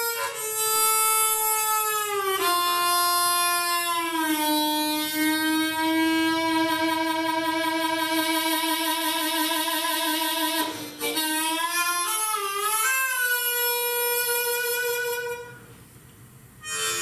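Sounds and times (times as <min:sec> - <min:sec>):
solo melodic instrument: 0:16.6 - 0:17.0.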